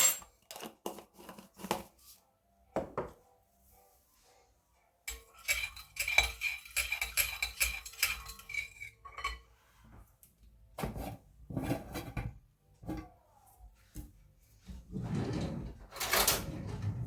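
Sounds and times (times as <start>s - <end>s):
cutlery and dishes clinking: 0.0s - 1.8s, 5.1s - 9.5s.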